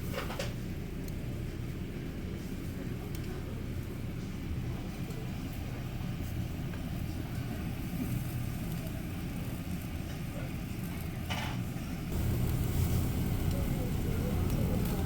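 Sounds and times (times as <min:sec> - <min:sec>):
low rumble: 0:12.1 - 0:15.0.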